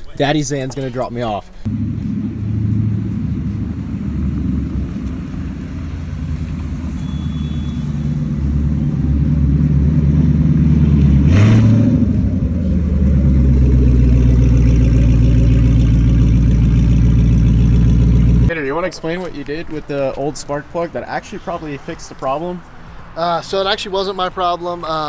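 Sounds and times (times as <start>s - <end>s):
car engine running: 1.7s - 18.5s.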